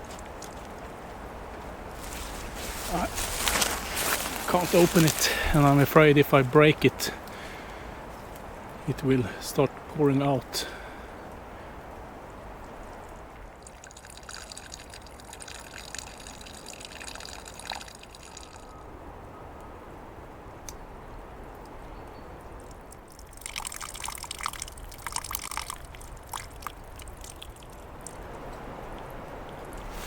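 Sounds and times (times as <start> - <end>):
water trickling from a tap: 13.6 - 18.7, 23.1 - 29.8.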